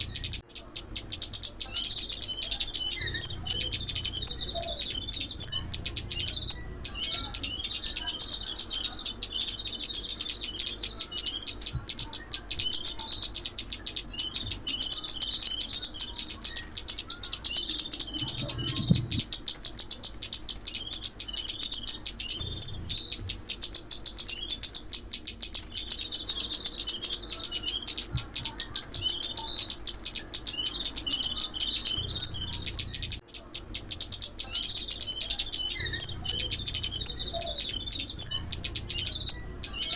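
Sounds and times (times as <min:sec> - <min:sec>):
songbird rapid high chirps: 0:00.0 - 0:39.9.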